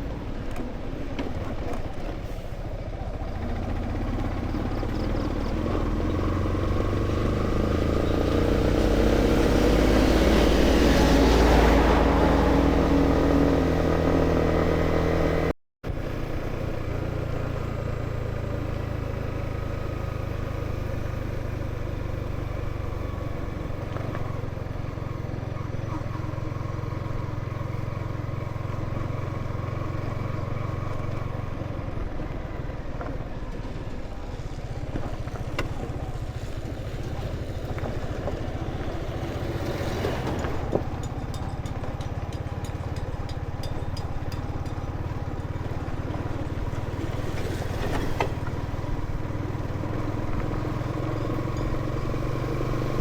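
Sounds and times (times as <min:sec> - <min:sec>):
motorcycle engine running: 0:02.8 - 0:53.0
sharp knocks and rattles: 0:40.0 - 0:48.7.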